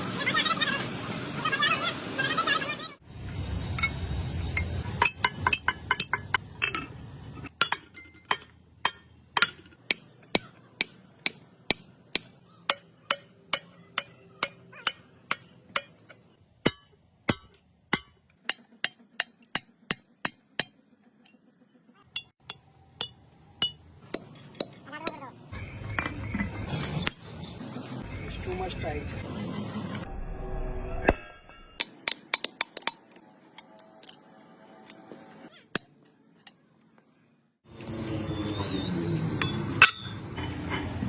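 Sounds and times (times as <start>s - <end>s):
hammer striking steel: 4.9s - 6.9s, 7.6s - 20.8s, 22.2s - 25.3s, 39.4s - 40.5s.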